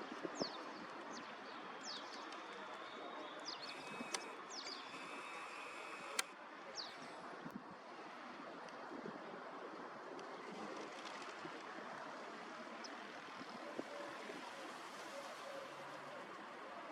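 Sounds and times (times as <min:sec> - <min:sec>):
outdoor background noise: 0:00.0 - 0:16.9
small birds chirping: 0:00.3 - 0:07.1
sharp clicks: 0:03.6 - 0:06.3.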